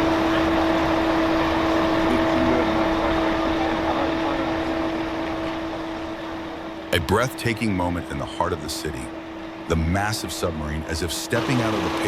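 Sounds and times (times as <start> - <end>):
heavy vehicle engine droning: 0.0 - 12.0.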